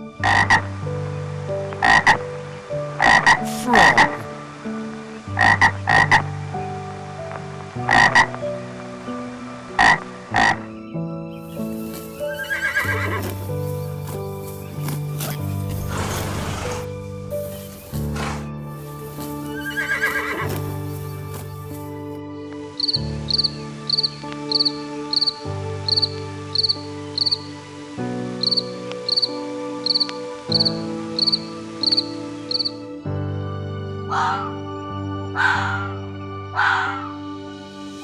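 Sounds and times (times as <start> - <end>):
background music: 0.0 - 38.0
insect chirping: 11.3 - 22.2, 22.8 - 27.5, 28.4 - 30.1, 31.2 - 32.7.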